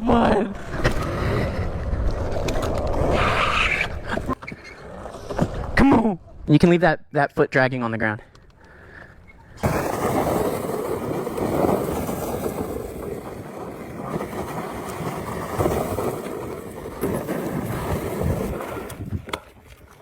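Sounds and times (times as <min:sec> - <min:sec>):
wind buffeting microphone: 0:17.5 - 0:19.4.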